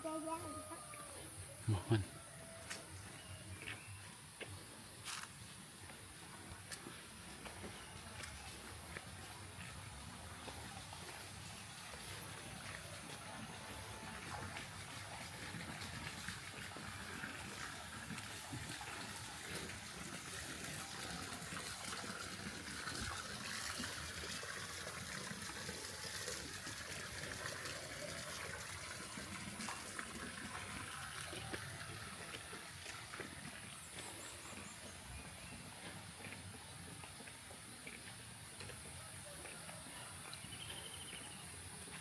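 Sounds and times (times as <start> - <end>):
water rushing: 8.0 - 36.9.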